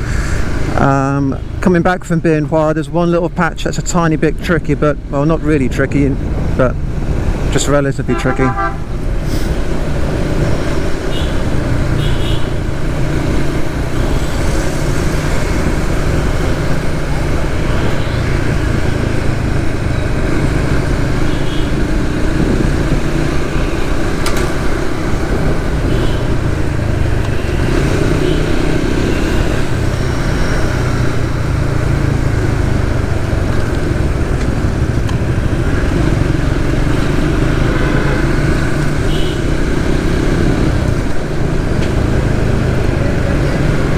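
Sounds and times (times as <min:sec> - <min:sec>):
road and wind noise: 0:00.0 - 0:43.9
motorcycle engine running: 0:09.8 - 0:43.9.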